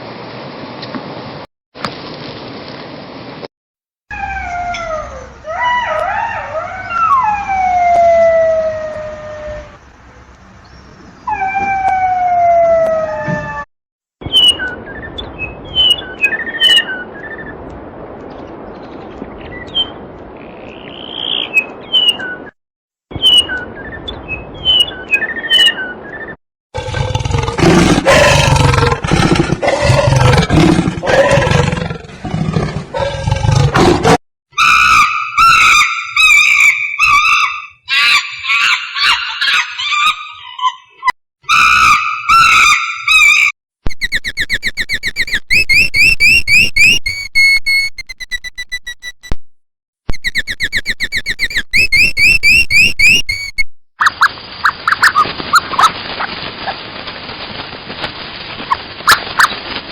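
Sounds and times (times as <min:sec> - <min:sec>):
long falling animal calls: 0:04.1 - 0:09.8, 0:26.8 - 0:33.7
high chirps: 0:43.9 - 0:49.4, 0:50.1 - 0:54.3.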